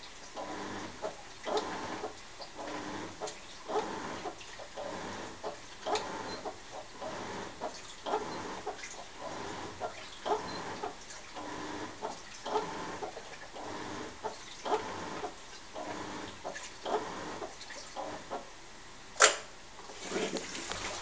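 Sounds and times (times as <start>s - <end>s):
water and laundry sloshing: 0.0s - 18.4s, 19.8s - 21.0s
washing machine churning: 0.0s - 18.6s, 19.4s - 21.0s
sharp click: 19.2s - 19.5s.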